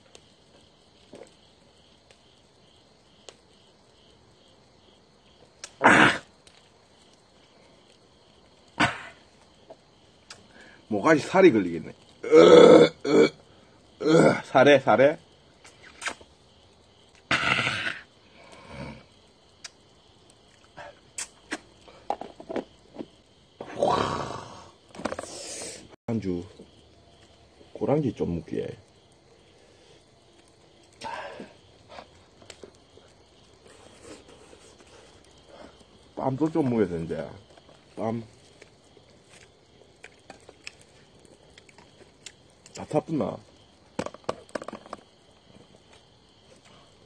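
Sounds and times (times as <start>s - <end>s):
crickets chirping: 0.0s - 47.0s
man clearing throat: 5.8s - 6.3s, 8.8s - 9.2s.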